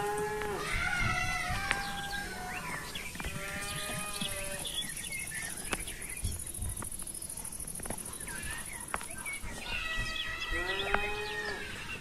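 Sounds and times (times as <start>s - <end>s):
farm animal crying: 0.0s - 4.8s, 9.4s - 12.0s
small birds chirping: 0.0s - 12.0s.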